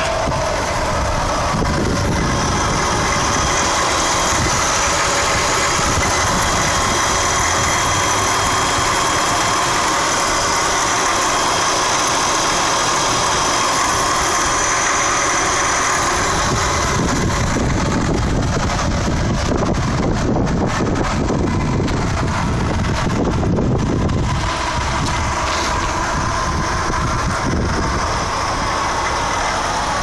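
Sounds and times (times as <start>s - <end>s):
wind rumble on microphone: 0.0s - 8.9s, 16.0s - 28.3s
rotary engine idling: 0.0s - 30.0s.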